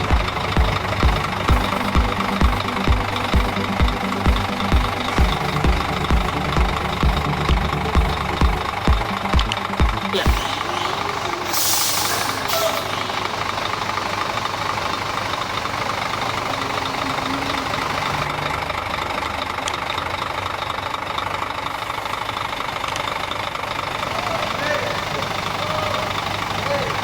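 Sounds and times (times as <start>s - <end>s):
engine idling: 0.0s - 27.0s
short hiss: 11.4s - 13.1s.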